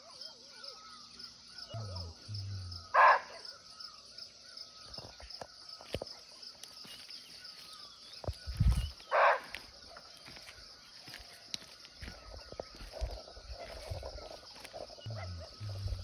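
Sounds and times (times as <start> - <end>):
pulsing chorus of insects: 0.0 - 16.0
deer barking: 1.8 - 3.4, 9.1 - 9.5, 15.1 - 16.0.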